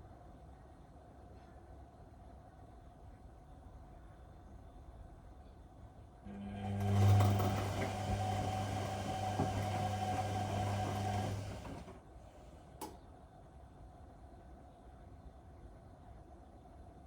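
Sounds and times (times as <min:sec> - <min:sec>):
washing machine drum motor humming: 0:06.3 - 0:12.0.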